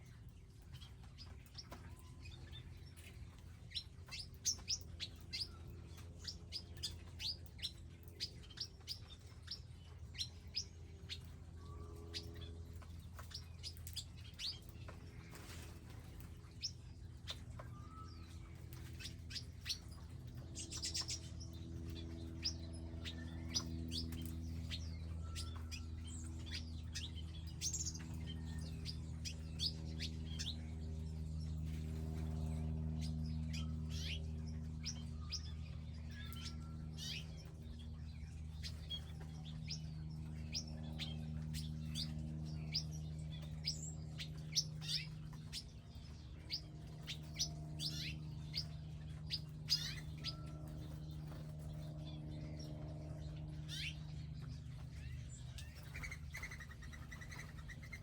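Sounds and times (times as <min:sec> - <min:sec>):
low steady hum: 0:00.0 - 0:58.0
small birds chirping: 0:00.0 - 0:58.0.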